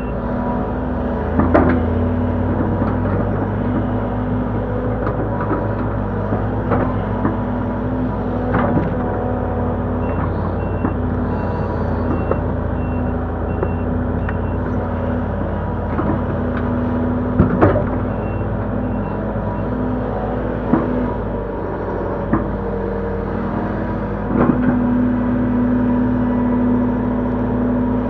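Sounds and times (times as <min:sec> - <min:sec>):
excavator engine and hydraulics: 0:00.0 - 0:28.0
back-up alarm beeping: 0:10.0 - 0:14.7.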